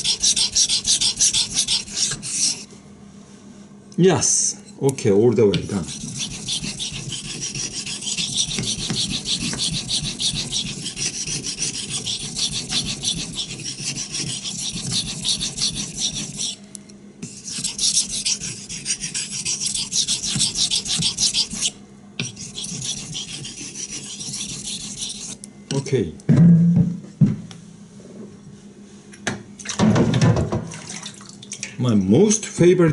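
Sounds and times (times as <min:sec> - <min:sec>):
knife scraping on whetstone: 0:00.0 - 0:02.7, 0:05.6 - 0:16.6, 0:17.2 - 0:25.5.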